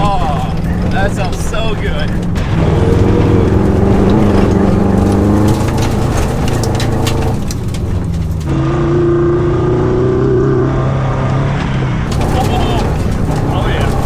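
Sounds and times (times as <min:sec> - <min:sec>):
sharp clicks and knocks: 0:00.0 - 0:08.5, 0:12.1 - 0:14.0
car engine driving: 0:00.0 - 0:14.0.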